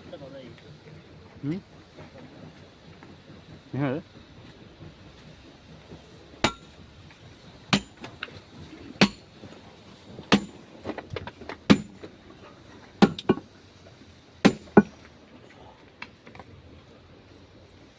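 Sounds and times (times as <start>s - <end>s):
hammer striking steel chisel: 6.4s - 6.7s, 9.0s - 9.2s, 10.3s - 10.6s, 11.7s - 12.0s, 13.0s - 13.4s, 14.4s - 14.9s.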